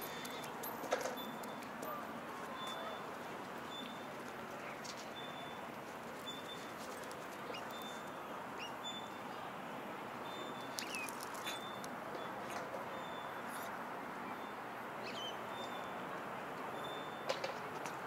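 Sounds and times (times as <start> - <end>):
small birds chirping: 6.2 - 9.2, 10.3 - 12.3.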